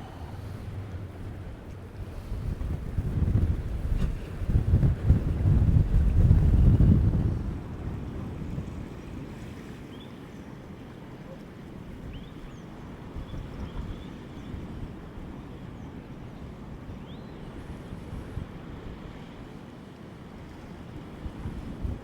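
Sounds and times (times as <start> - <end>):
strong gusting wind on microphone: 0.0 - 9.4
rough sea: 0.0 - 22.0.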